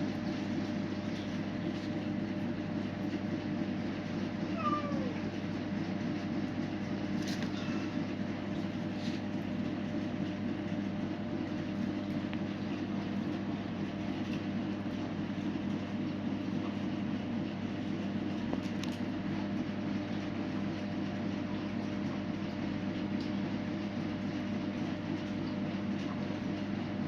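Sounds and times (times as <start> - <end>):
low mechanical hum: 0.0 - 27.0
cat meowing: 4.4 - 5.3.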